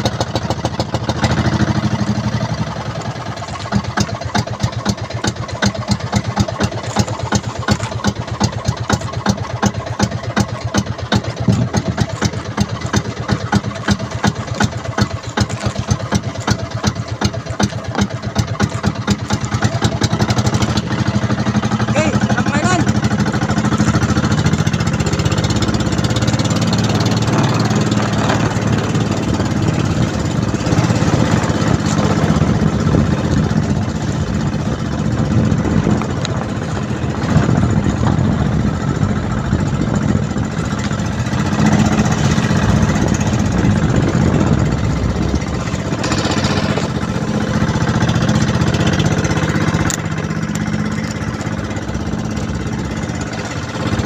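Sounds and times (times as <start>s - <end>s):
boat engine running: 0.0s - 54.0s
wind: 0.0s - 54.0s.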